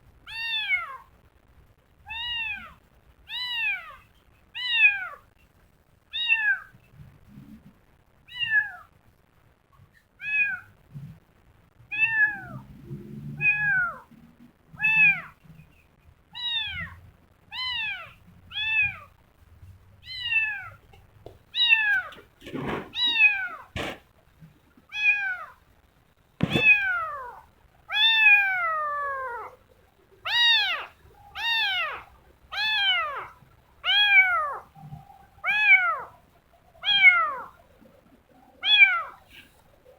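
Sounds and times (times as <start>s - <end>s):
kitten meowing: 0.3s - 1.0s, 2.1s - 4.0s, 8.3s - 8.9s, 10.2s - 10.7s, 11.9s - 12.6s, 13.4s - 14.1s, 14.8s - 15.4s, 16.4s - 19.1s, 20.0s - 20.8s, 21.6s - 24.0s, 24.9s - 25.6s, 26.4s - 29.6s, 30.2s - 34.7s, 35.4s - 36.1s, 36.8s - 37.6s, 38.6s - 39.2s
sharp knocks: 23.8s - 24.0s, 26.4s - 26.8s.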